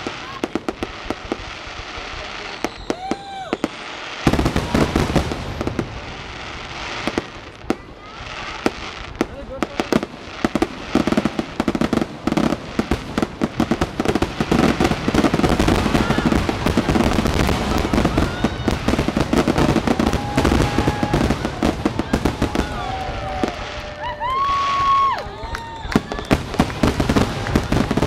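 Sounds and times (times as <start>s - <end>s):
fireworks bangs and crackling: 0.0s - 28.0s.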